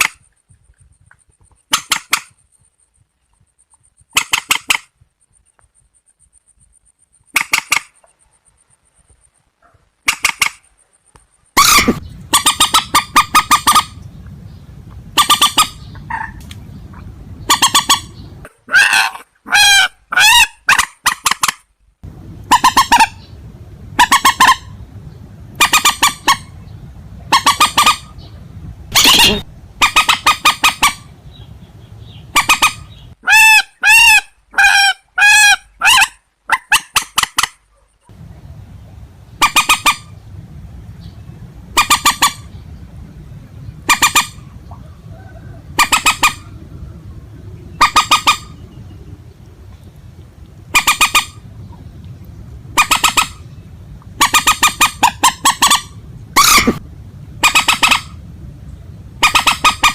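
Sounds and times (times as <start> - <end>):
clear pitched bird calls: 0.0 - 21.6, 22.4 - 38.6, 39.3 - 50.0
harsh nasal bird calls: 0.0 - 21.6, 22.4 - 38.6, 39.3 - 40.4, 41.0 - 49.5, 50.7 - 52.0, 52.7 - 56.8, 57.4 - 59.9.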